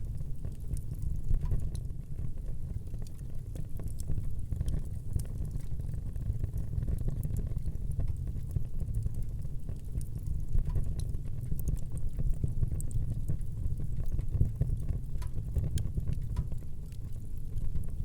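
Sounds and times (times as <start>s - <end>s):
fire crackling and popping: 0.0s - 18.0s
fire flames rumbling: 0.0s - 18.0s.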